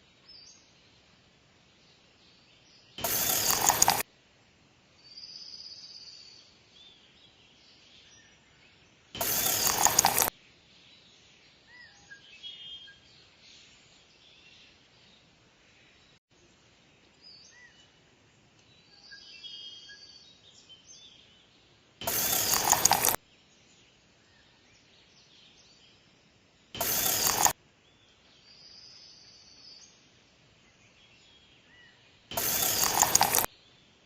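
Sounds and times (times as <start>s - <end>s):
loud mechanical noise bursts: 3.0s - 4.0s, 9.2s - 10.3s, 22.0s - 23.2s, 26.8s - 27.6s, 32.3s - 33.5s
faint bird calls: 30.7s - 33.8s.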